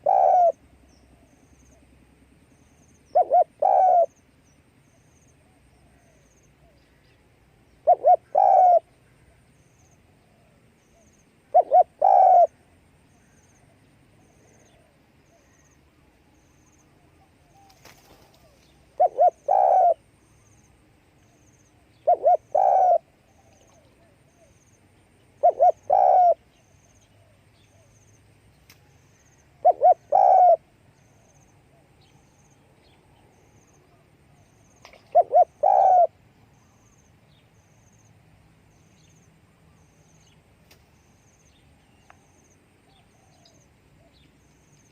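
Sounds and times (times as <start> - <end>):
dove cooing: 0.0 - 1.3, 3.1 - 4.1, 7.8 - 8.9, 11.0 - 12.6, 17.4 - 20.1, 22.0 - 24.5, 25.4 - 26.5, 29.6 - 30.7, 34.9 - 36.2.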